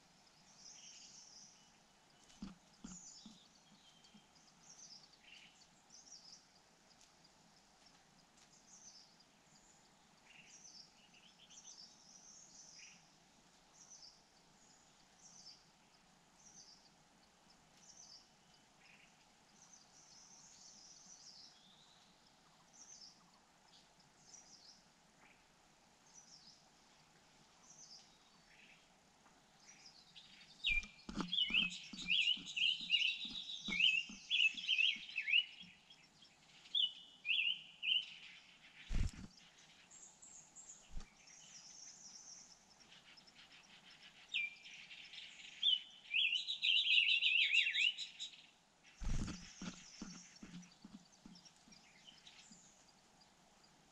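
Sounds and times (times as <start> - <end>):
soft knocks against nest: 2.2 - 3.4, 49.0 - 51.9
nestlings begging with high chirps: 29.5 - 53.9
faint high bird calls: 29.6 - 53.2.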